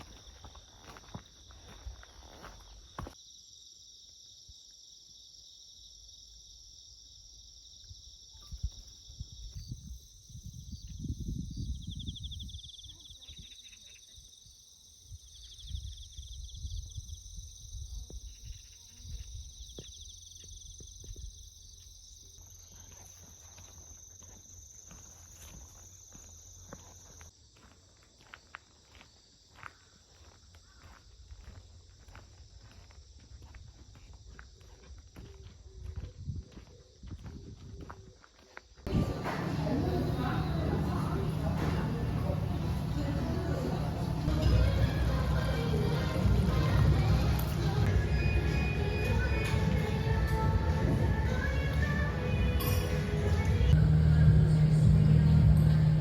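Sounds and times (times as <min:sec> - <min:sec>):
footsteps: 0:00.0 - 0:03.2, 0:29.6 - 0:56.0
insects chorus: 0:00.0 - 0:56.0
low rumbling: 0:38.9 - 0:56.0.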